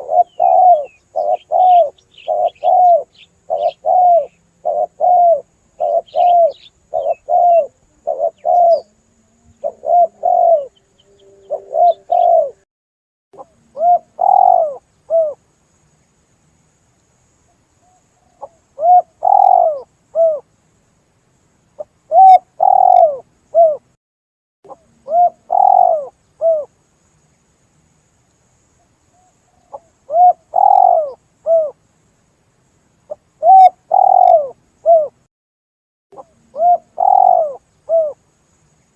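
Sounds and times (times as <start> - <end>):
dove cooing: 0.0 - 12.6, 13.4 - 15.4, 17.8 - 20.4, 22.1 - 23.9, 24.7 - 26.7, 29.2 - 31.8, 33.1 - 35.2, 36.2 - 38.2.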